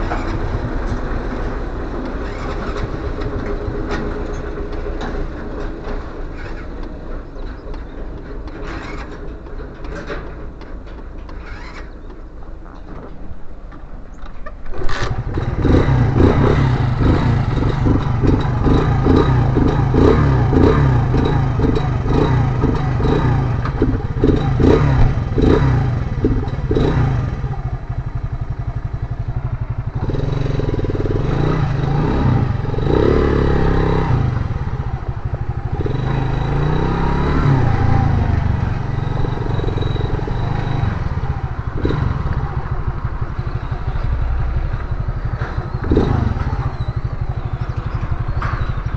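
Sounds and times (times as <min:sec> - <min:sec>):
motorcycle engine running: 0:14.8 - 0:48.9.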